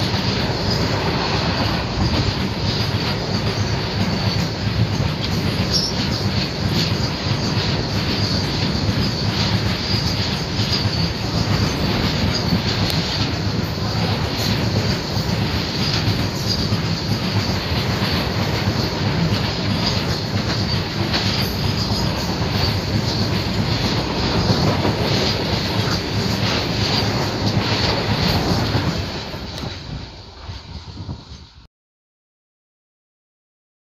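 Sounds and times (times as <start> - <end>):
freight train wheels rumbling: 0.0 - 31.7
high wheel squeal: 5.3 - 29.6.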